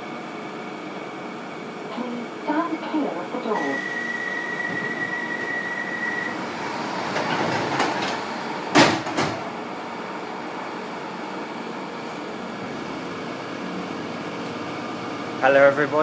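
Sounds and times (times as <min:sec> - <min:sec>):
train carriage rumble: 0:01.9 - 0:16.0
high warning tone: 0:03.5 - 0:07.3
train doors shutting with a thud: 0:03.6 - 0:09.7.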